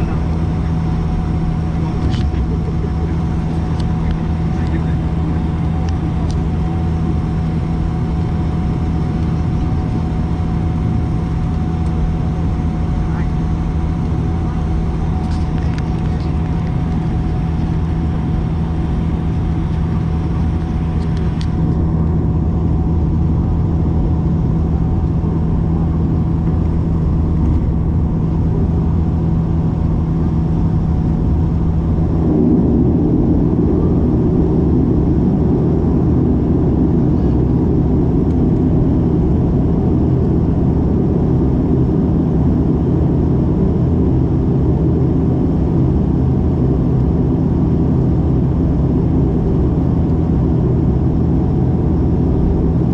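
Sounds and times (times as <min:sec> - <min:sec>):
turboprop engines from cabin: 0:00.0 - 0:52.9.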